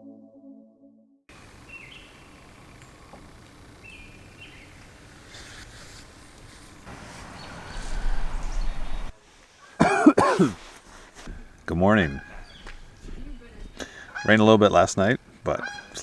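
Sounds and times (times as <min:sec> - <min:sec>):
birds honking loudly: 0:01.3 - 0:09.1, 0:11.2 - 0:16.0
faint bird chirps: 0:01.4 - 0:05.0
rushing noise: 0:06.8 - 0:09.2.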